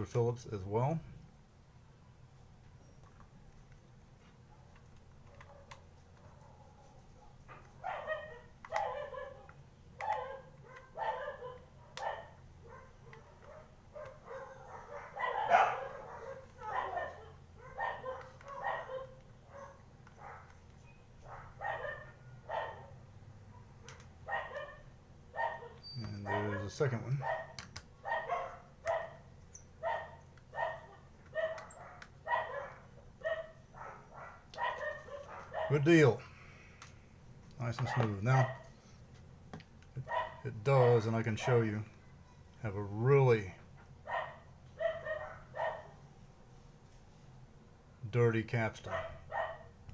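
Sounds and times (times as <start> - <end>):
dog barking: 4.5 - 20.6, 21.2 - 35.9, 37.8 - 38.7, 40.0 - 40.4, 44.0 - 46.0, 48.9 - 49.7.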